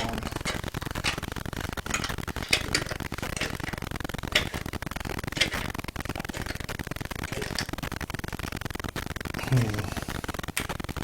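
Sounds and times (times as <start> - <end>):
steady low background noise: 0.0 - 11.0.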